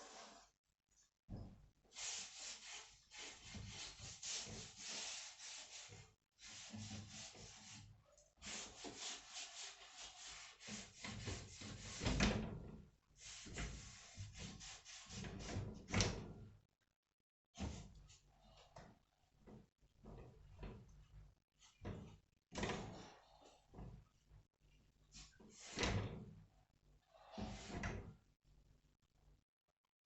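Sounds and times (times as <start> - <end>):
rapid rubbing strokes: 2.0 - 7.8.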